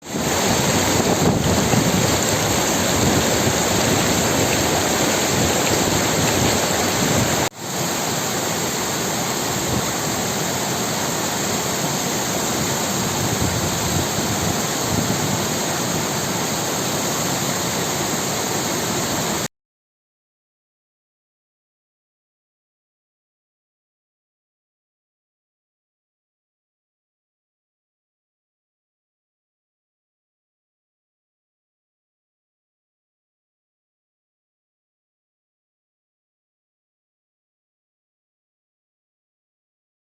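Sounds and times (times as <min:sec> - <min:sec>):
spring water rushing: 0:00.0 - 0:19.5.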